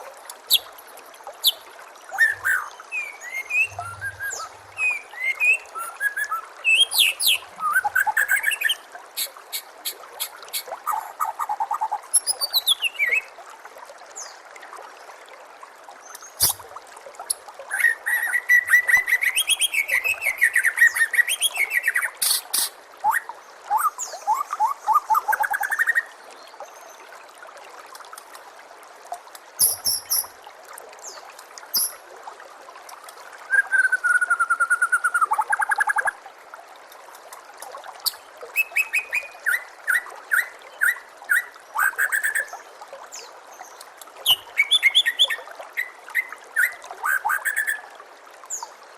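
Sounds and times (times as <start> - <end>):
trickling water: 0.0 - 48.9
bird singing whistled phrases: 1.4 - 8.8, 29.6 - 30.3, 31.8 - 32.0, 33.5 - 35.4.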